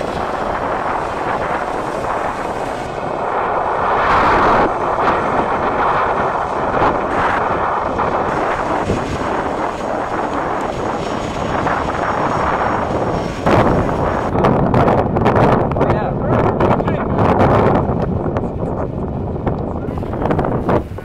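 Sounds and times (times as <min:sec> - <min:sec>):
airliner engines running: 0:00.0 - 0:14.7.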